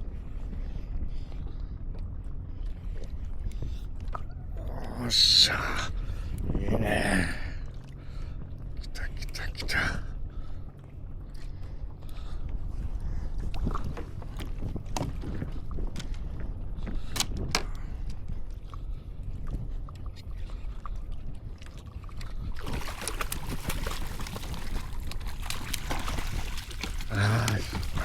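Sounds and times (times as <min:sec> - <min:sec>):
wind rumble on microphone: 0:00.0 - 0:28.0
water sloshing against kayak: 0:10.2 - 0:28.0
loud splashing water: 0:22.6 - 0:28.0.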